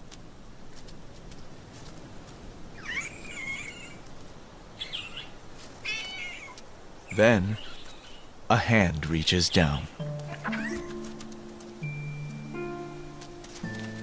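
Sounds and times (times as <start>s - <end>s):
steady outdoor hiss: 0.0s - 14.0s
high wavering animal calls: 2.8s - 4.1s, 4.8s - 8.4s, 9.6s - 11.4s.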